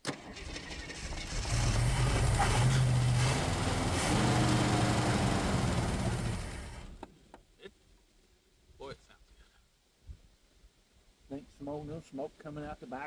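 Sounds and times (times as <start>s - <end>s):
car engine starting and running: 0.0s - 7.0s.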